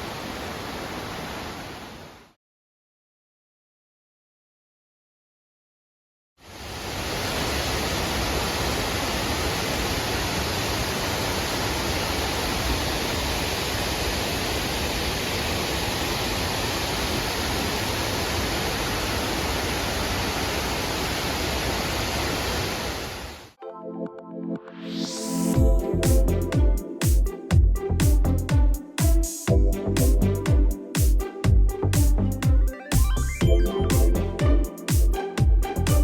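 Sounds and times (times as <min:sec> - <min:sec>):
waterfall roaring: 0:06.5 - 0:23.4.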